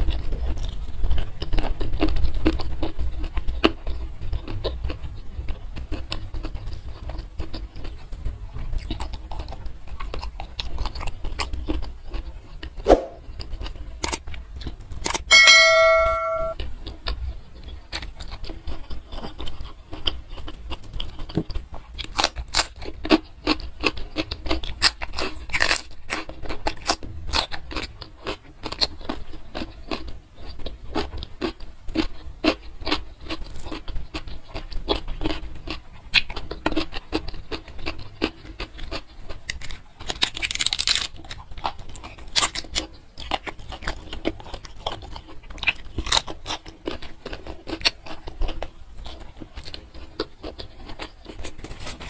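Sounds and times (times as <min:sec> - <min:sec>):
chewing and crunching: 0:00.0 - 0:15.4, 0:16.5 - 0:52.0
wet mouth sounds: 0:12.6 - 0:14.2.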